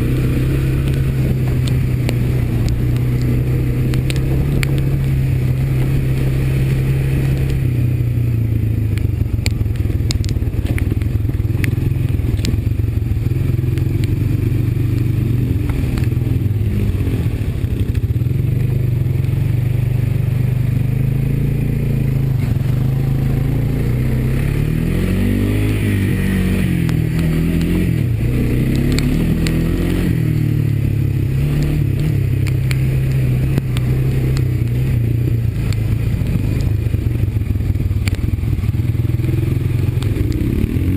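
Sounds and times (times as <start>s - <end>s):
atv engine revving: 0.0s - 40.9s
sharp clicks and clatter: 0.8s - 7.8s, 8.8s - 18.2s, 26.7s - 30.3s, 31.6s - 40.9s.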